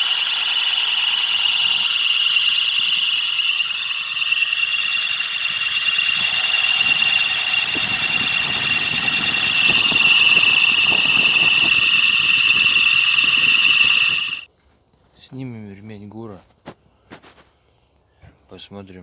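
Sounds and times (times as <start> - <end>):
car engine running: 0.0 - 14.5
high-pitched squeal: 0.0 - 14.5
power steering pump scraping: 0.0 - 14.5.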